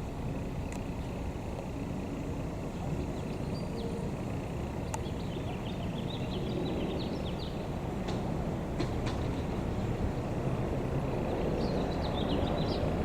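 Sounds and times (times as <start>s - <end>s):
vehicle engine rumbling: 0.0s - 13.0s
bird chirping: 2.9s - 4.1s, 4.8s - 7.6s, 11.3s - 13.0s
light clicks: 4.9s - 5.1s.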